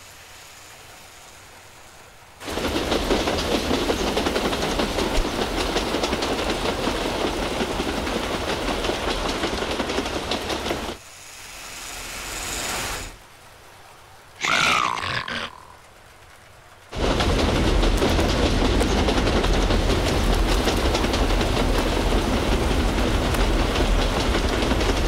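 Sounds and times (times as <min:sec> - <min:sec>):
train wheels clattering over rails: 0:02.4 - 0:11.1, 0:16.2 - 0:25.0.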